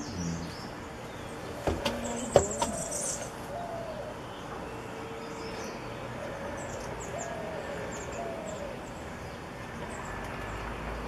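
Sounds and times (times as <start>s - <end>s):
bird cooing: 1.8s - 4.2s, 6.2s - 8.8s.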